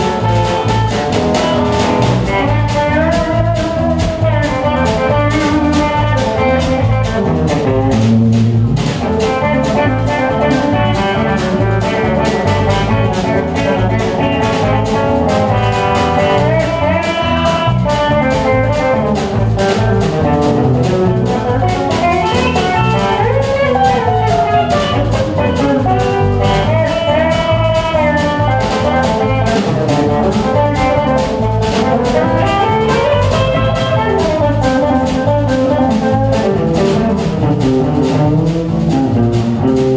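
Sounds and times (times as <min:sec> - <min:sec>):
live blues-rock band: 0:00.0 - 0:39.9
wavering lead melody: 0:00.0 - 0:39.9.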